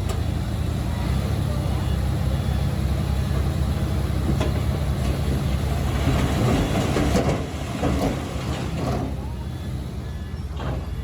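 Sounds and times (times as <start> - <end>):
bulldozer diesel engine running: 0.0 - 11.0
metallic clanking of tracks: 3.2 - 11.0.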